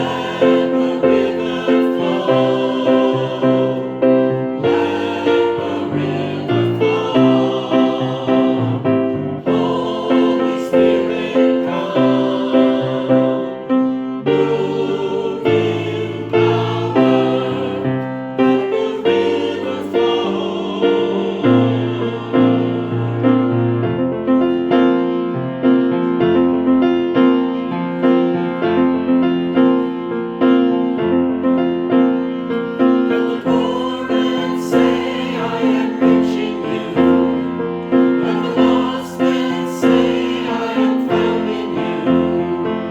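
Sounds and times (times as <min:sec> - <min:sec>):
choir singing a worship song: 0:00.0 - 0:24.0, 0:32.7 - 0:42.9
piano accompaniment: 0:00.0 - 0:42.9.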